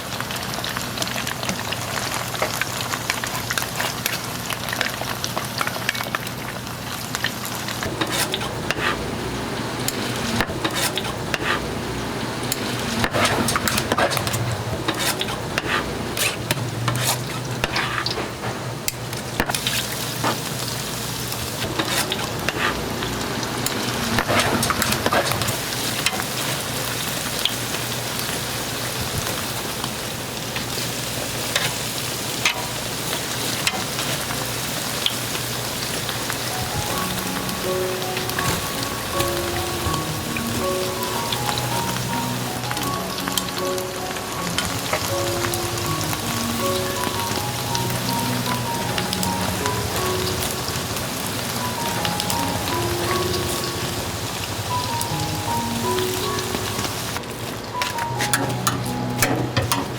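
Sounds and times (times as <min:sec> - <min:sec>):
deep-frying sizzling and popping: 0:00.0 - 0:59.9.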